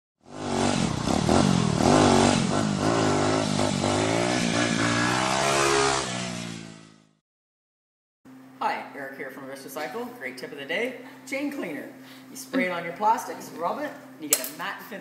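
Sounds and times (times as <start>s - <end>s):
motorcycle engine revving: 0.2s - 7.2s.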